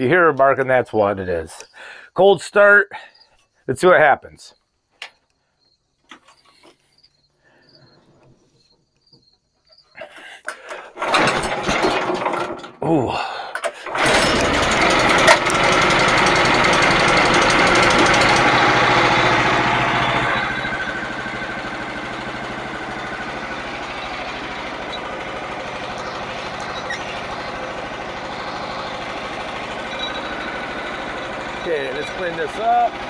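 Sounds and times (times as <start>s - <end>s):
small gasoline engine running: 10.8s - 33.0s.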